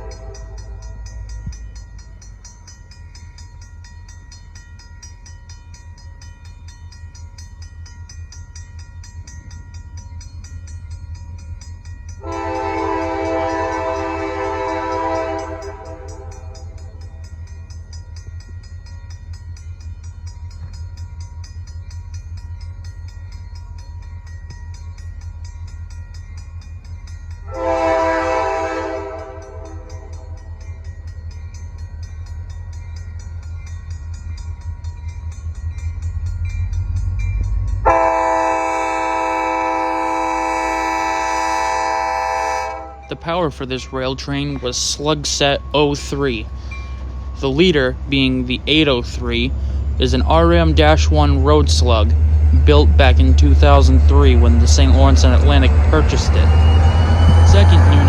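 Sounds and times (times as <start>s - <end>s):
locomotive air horn blasts: 0.0s - 0.9s, 12.2s - 16.8s, 27.5s - 30.4s, 37.8s - 43.2s, 55.1s - 58.0s
diesel engine rumble: 27.6s - 58.0s.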